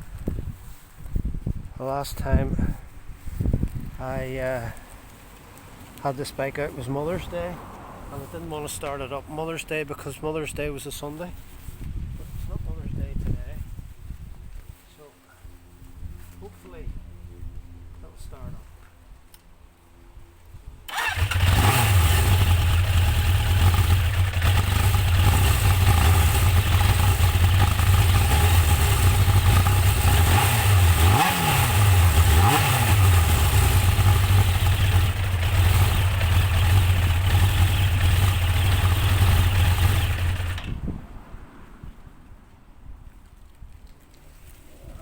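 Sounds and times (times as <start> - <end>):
motorcycle engine: 20.9 - 40.9.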